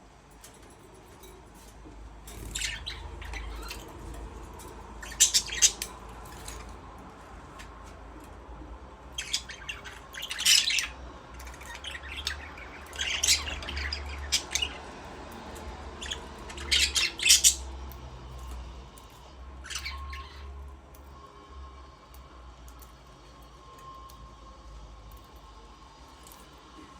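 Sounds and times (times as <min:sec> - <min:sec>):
budgerigars chirping and squawking: 0:02.3 - 0:06.8, 0:09.1 - 0:20.6.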